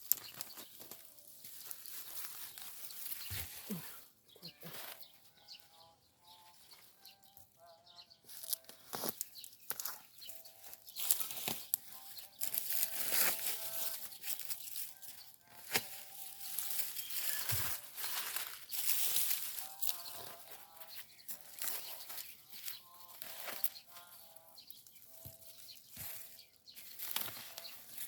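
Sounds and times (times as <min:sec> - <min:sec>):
dry leaves rustling and crackling: 0:00.0 - 0:05.1, 0:08.2 - 0:28.0
bird chirps: 0:00.0 - 0:28.0.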